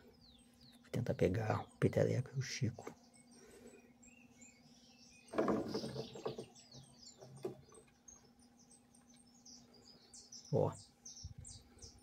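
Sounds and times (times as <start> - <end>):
faint steady hum: 0.0 - 5.3
small birds chirping: 0.0 - 12.0.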